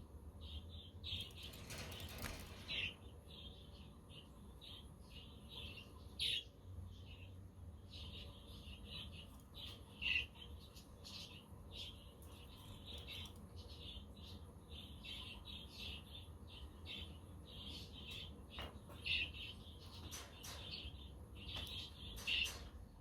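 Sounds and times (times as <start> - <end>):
budgerigars chattering and chirping: 8.0 - 22.6.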